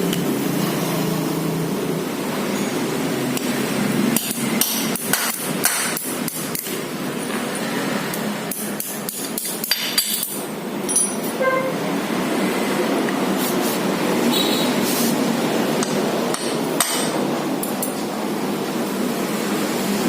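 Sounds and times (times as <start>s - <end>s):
hammer tapping metal: 4.2s - 6.8s, 15.8s - 17.2s.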